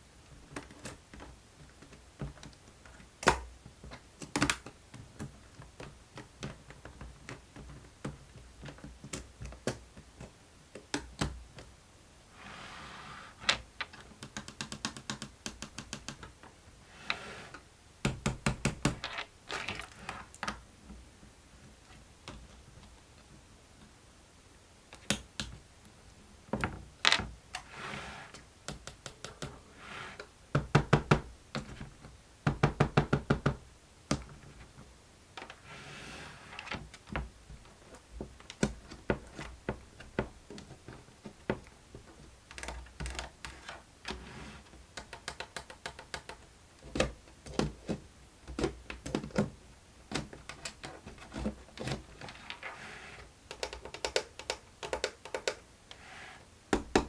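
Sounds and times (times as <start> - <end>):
knocks and taps on plastic: 18.0 - 19.0, 30.5 - 31.7, 32.4 - 34.3, 56.7 - 57.0.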